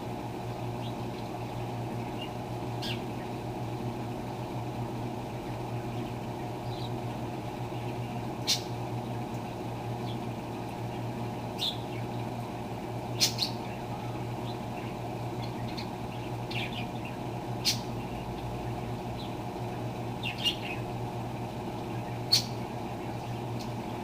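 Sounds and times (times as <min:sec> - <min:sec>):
washing machine humming: 0:00.0 - 0:24.0
bird chirps: 0:02.0 - 0:03.1, 0:11.6 - 0:12.3, 0:20.2 - 0:20.8, 0:21.9 - 0:23.9.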